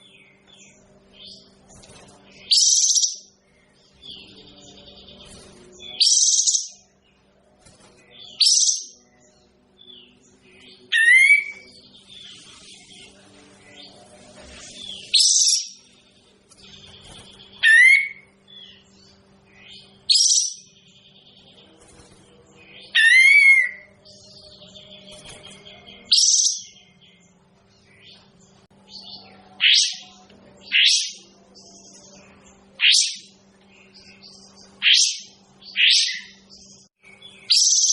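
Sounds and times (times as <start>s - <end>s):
faint steady hum: 0.0s - 37.9s
songbird calling: 8.2s - 13.0s, 16.8s - 18.9s, 22.8s - 25.1s, 29.0s - 31.3s, 32.2s - 37.9s.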